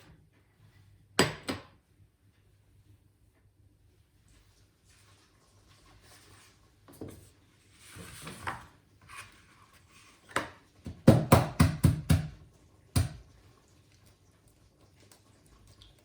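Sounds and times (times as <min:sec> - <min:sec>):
sharp knocks on work surface: 0:10.9 - 0:12.4.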